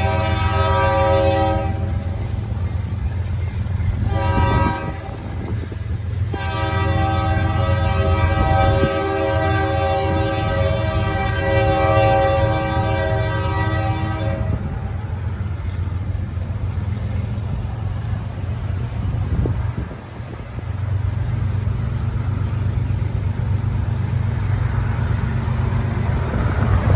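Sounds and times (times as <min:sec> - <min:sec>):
locomotive air horn: 0:00.0 - 0:02.2, 0:04.0 - 0:05.3, 0:06.3 - 0:14.9
passing train rumble: 0:00.0 - 0:26.9.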